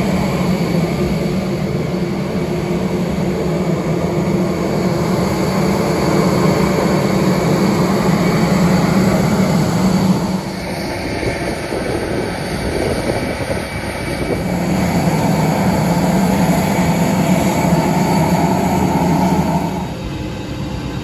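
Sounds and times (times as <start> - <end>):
aircraft cabin engine hum: 0.0 - 21.0.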